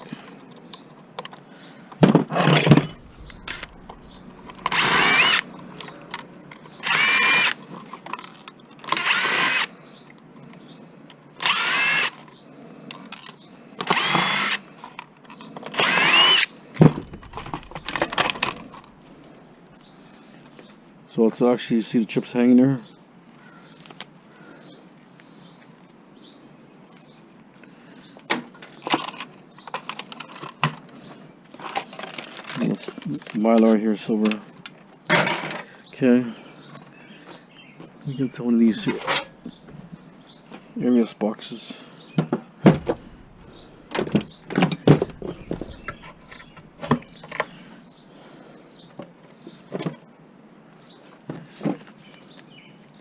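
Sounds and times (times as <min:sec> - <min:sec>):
clicks and knocks of parts: 0:28.2 - 0:30.9
plastic and metal parts clacking: 0:28.3 - 0:30.9, 0:42.7 - 0:47.5.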